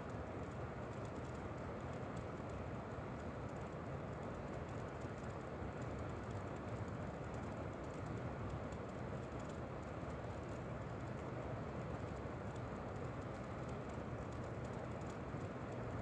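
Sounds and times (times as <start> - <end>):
wind: 0.0 - 16.0
faint light ticks: 11.9 - 16.0.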